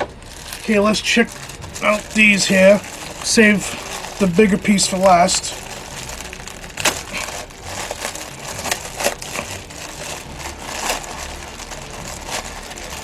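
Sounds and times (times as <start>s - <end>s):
wrapping crinkling and crackling: 0.0s - 13.0s.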